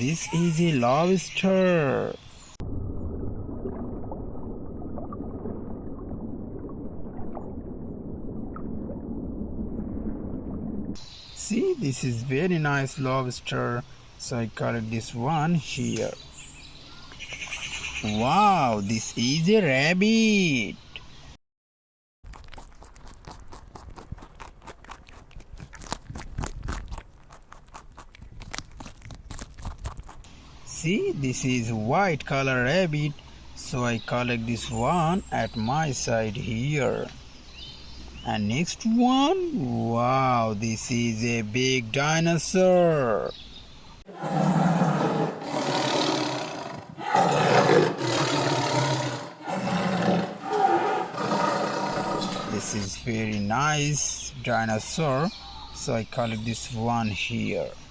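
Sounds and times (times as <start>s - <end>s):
dinosaur roars: 44.1s - 52.7s.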